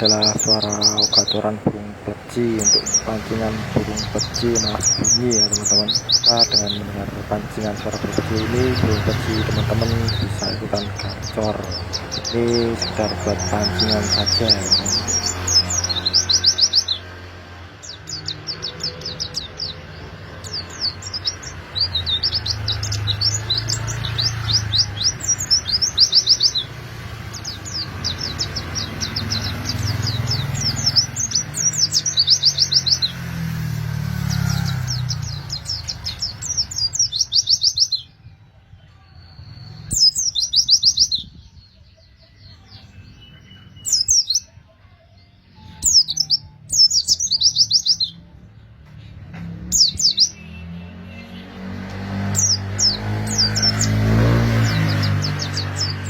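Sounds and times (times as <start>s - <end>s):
bird singing high chirps: 0.0s - 56.0s.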